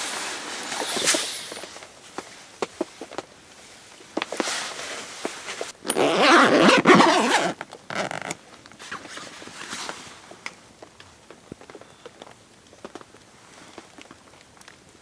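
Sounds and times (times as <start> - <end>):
zipper being pulled: 0.0 - 1.8, 5.8 - 8.4
fabric rustling: 0.0 - 3.0.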